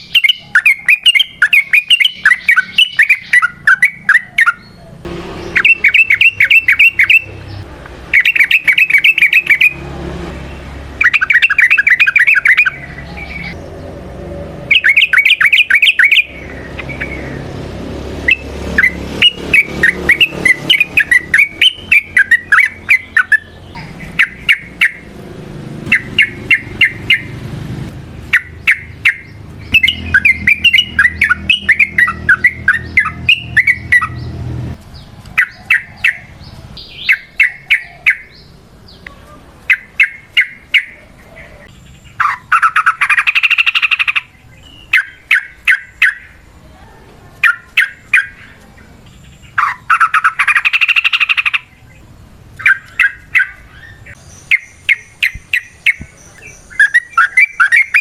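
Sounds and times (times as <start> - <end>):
bird singing bubbling notes: 0.0 - 9.8, 10.5 - 13.9, 14.5 - 17.5, 18.2 - 25.2, 25.8 - 27.4, 28.2 - 34.4, 49.5 - 58.0.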